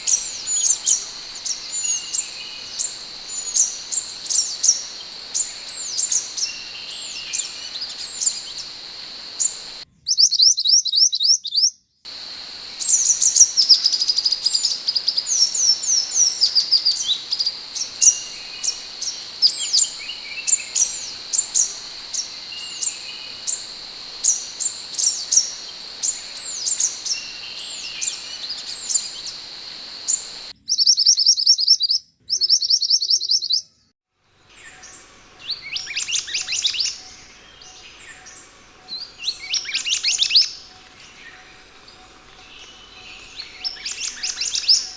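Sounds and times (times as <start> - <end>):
bird whistled notes and trills: 0.0 - 9.8, 12.1 - 31.1
steady high whine: 0.0 - 9.8, 12.1 - 30.5.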